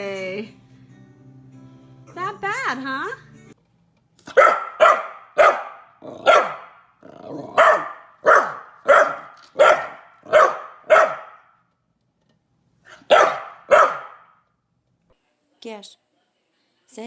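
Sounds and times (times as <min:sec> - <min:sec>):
dog barking: 0:04.2 - 0:06.8, 0:07.5 - 0:11.5, 0:12.9 - 0:14.4.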